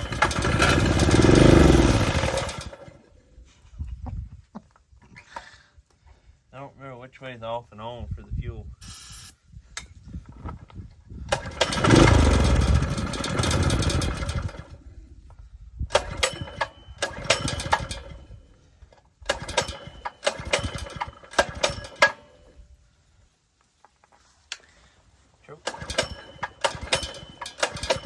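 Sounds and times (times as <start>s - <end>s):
small engine being pull-started: 0.0s - 3.1s, 11.3s - 14.8s, 15.9s - 22.6s, 25.6s - 28.0s.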